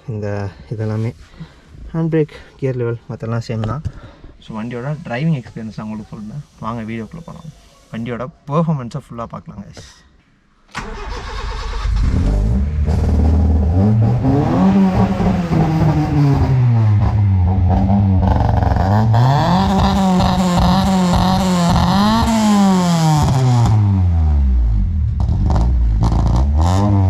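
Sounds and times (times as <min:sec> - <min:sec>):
car engine revving hard: 0:10.9 - 0:27.0.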